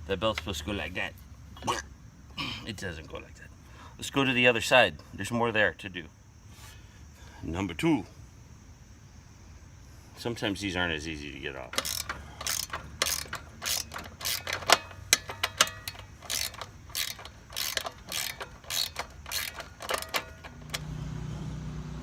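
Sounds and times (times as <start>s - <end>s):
ratcheting wrench clicking: 11.7s - 20.9s.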